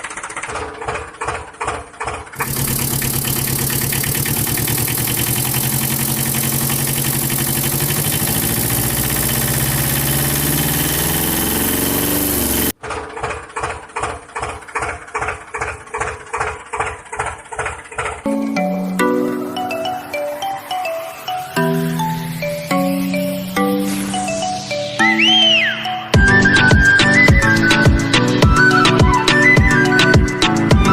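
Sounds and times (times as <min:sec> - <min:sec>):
small motor machine chugging: 0:00.0 - 0:18.3
machine fast-running hum: 0:02.4 - 0:12.8.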